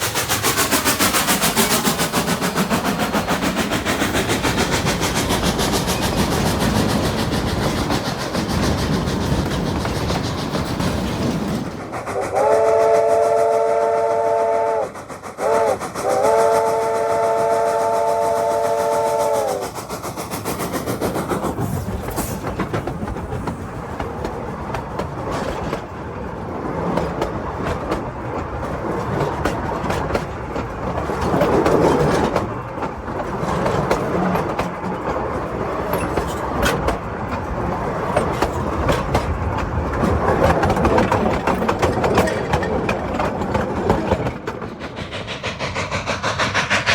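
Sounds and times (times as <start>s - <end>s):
wheels clattering over rails: 0.0s - 11.9s, 26.6s - 45.5s
train running noise: 0.0s - 46.9s
steam whistle blasts: 12.1s - 19.6s.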